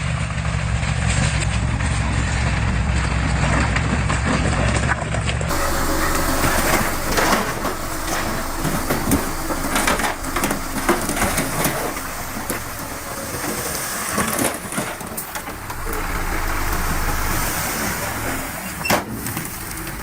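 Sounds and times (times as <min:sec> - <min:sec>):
machinery crunching soil and rock: 0:00.0 - 0:20.0
low engine hum: 0:05.5 - 0:20.0.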